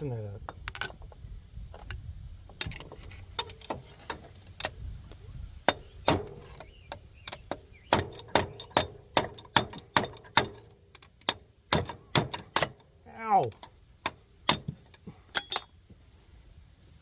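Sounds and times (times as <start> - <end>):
hand tools clicking and knocking: 2.5 - 4.8, 5.6 - 15.8
sharp metallic taps ringing: 5.7 - 12.8, 13.6 - 15.8.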